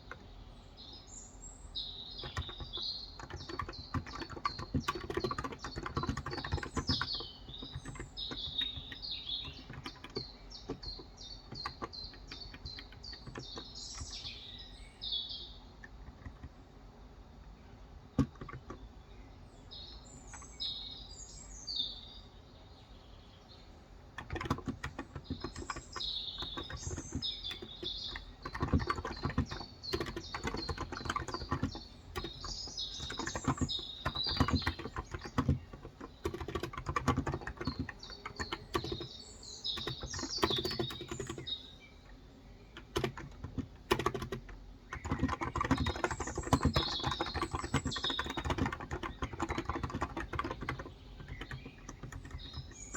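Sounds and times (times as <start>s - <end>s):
small birds chirping: 0.0s - 52.9s
muted keyboard keystrokes: 2.2s - 14.4s, 15.8s - 16.6s, 18.1s - 18.8s, 24.2s - 41.7s, 42.7s - 52.9s.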